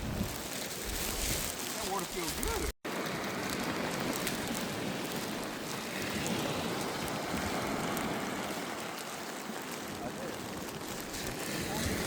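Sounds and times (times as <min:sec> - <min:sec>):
rushing water at beach: 0:00.0 - 0:12.0.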